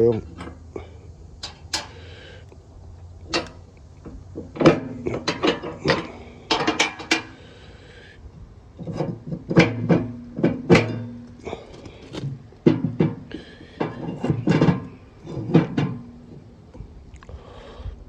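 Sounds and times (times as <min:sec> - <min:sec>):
metal parts clanking: 0:01.4 - 0:02.0, 0:03.3 - 0:07.5, 0:08.8 - 0:16.5.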